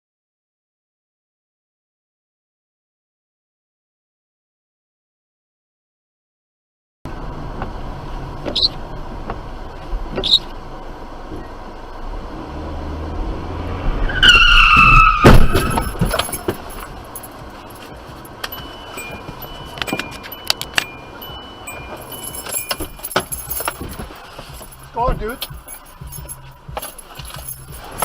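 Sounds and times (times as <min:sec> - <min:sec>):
tyres squealing: 0:14.1 - 0:28.0
loud crash impact: 0:14.8 - 0:16.7
debris clicking and tinkling: 0:15.5 - 0:28.0.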